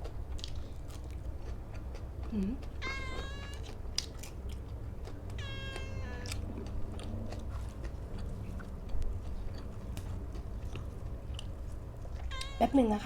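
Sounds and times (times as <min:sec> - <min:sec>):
chewing clicks: 0:00.0 - 0:12.7
cat meowing: 0:02.7 - 0:03.8, 0:05.3 - 0:06.6, 0:12.2 - 0:13.0.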